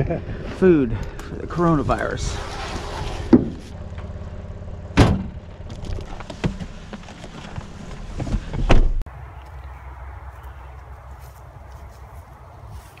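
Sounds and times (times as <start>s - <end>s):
vehicle engine idling: 3.5s - 7.9s
loud thumps: 4.9s - 6.7s.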